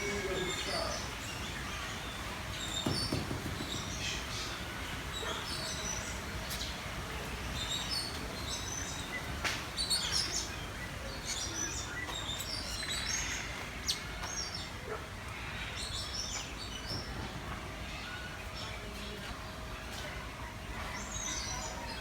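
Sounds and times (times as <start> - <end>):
birds chirping and calling: 0.0 - 22.0
steady background noise: 0.0 - 22.0
thump: 2.8 - 4.0.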